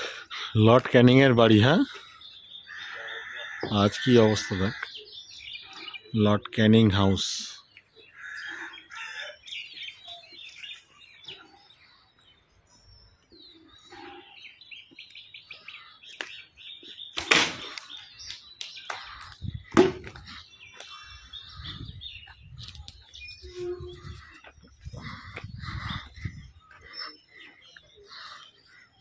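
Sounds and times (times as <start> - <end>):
small birds chirping: 0.0 - 29.0
loud sharp sounds: 17.2 - 18.0.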